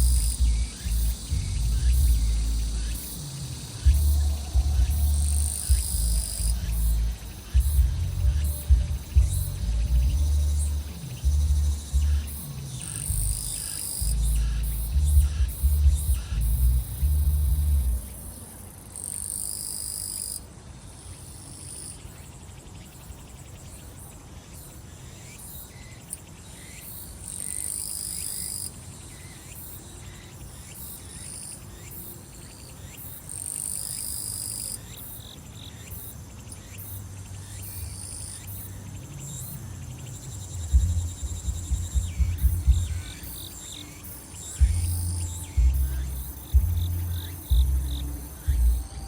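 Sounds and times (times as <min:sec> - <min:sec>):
insect buzz: 0:00.0 - 0:49.0
insects trilling chorus: 0:00.0 - 0:49.0
distant music thudding beat: 0:03.8 - 0:12.4, 0:13.1 - 0:18.0, 0:40.6 - 0:43.4, 0:44.5 - 0:49.0.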